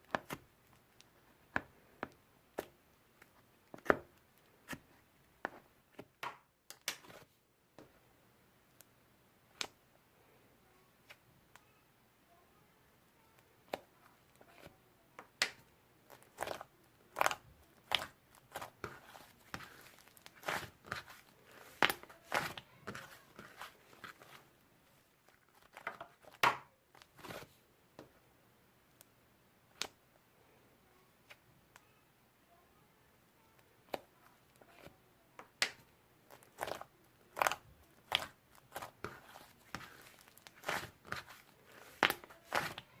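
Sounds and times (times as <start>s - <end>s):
slime crackling and popping: 35.6s - 42.9s.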